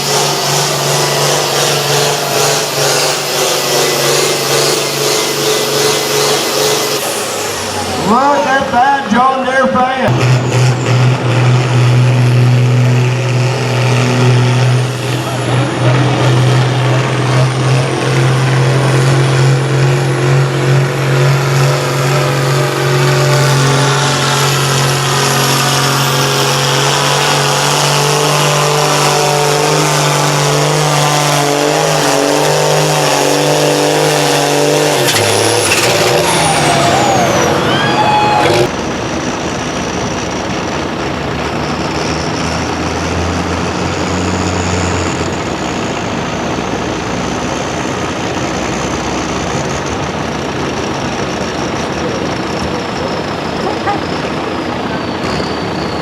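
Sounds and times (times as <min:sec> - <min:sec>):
tractor diesel engine running hard: 0:00.0 - 0:56.0
falling whistle: 0:36.0 - 0:38.7, 0:54.1 - 0:56.0.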